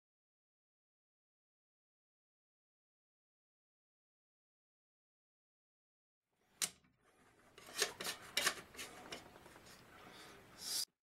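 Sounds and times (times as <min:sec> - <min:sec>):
scraping of tool and bolts: 0:07.1 - 0:09.4.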